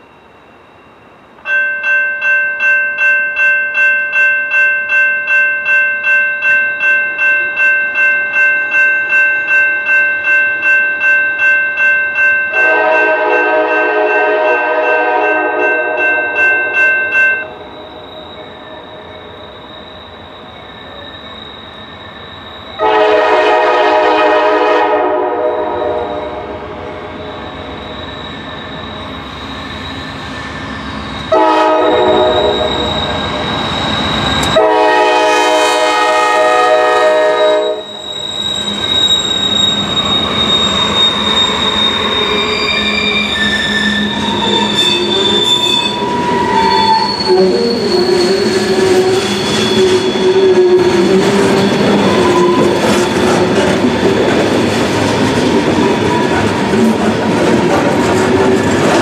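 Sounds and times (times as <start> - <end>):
train wheel noise: 5.0 - 59.0
locomotive air horn blasts: 12.5 - 16.3, 22.8 - 26.7, 31.3 - 32.8, 34.5 - 37.9
high wheel squeal: 17.5 - 23.0, 26.0 - 34.8, 37.4 - 57.0.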